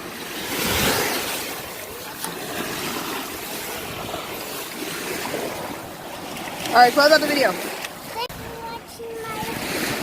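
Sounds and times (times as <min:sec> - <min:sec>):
ocean surf washing onto sand: 0:00.0 - 0:10.0.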